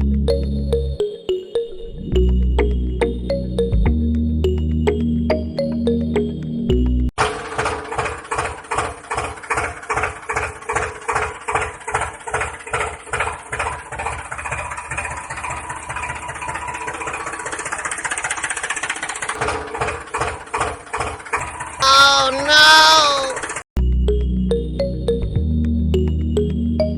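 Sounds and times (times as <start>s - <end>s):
tractor engine chugging: 7.5s - 21.7s.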